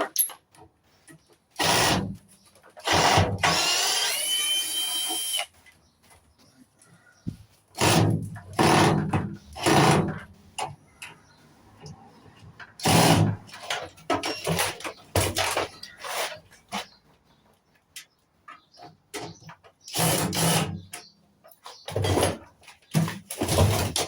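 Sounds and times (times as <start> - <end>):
metal parts clicking and knocking: 0.0 - 0.7
power drill-driver bursts: 1.6 - 2.2, 2.8 - 5.5.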